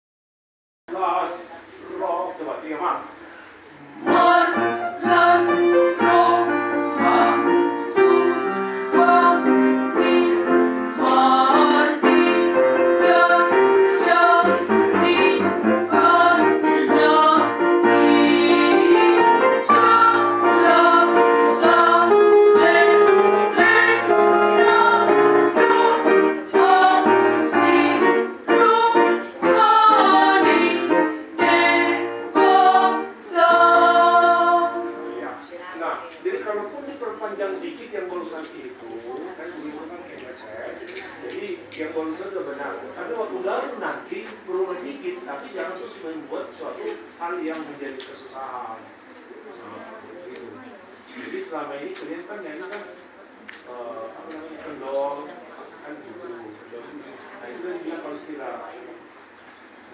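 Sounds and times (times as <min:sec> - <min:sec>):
choir section singing: 0:04.0 - 0:35.3
piano accompaniment: 0:04.0 - 0:35.4.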